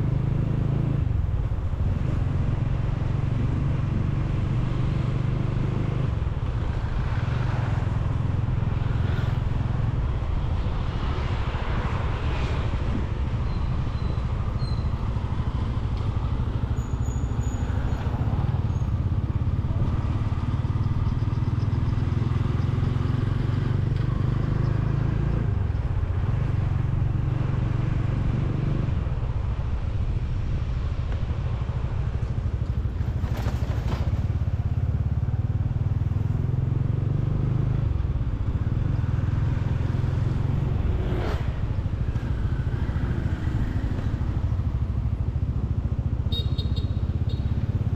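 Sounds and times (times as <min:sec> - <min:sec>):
motorcycle engine running: 0:39.8 - 0:47.9.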